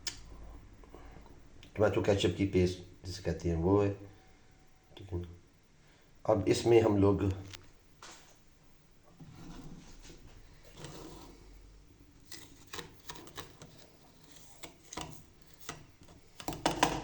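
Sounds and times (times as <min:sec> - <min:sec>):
faint rubbing and rustling: 0:09.1 - 0:16.4.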